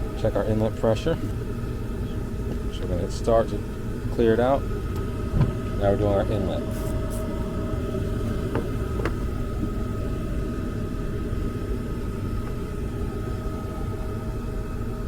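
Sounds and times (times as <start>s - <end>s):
faint steady whine: 0.0s - 15.0s
gas furnace rumbling: 0.0s - 15.0s.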